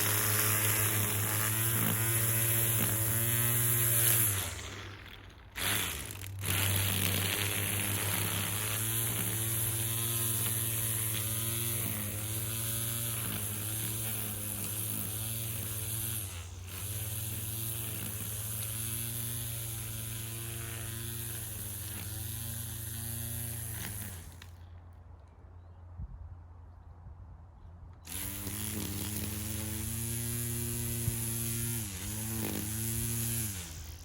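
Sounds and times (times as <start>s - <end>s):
small electric motor running: 0.0s - 24.7s, 28.1s - 34.0s.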